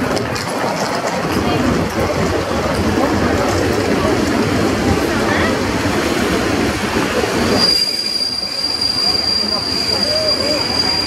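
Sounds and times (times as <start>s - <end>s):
train coaches rumbling: 0.0s - 11.0s
high-pitched squeal of running gear: 7.5s - 11.0s.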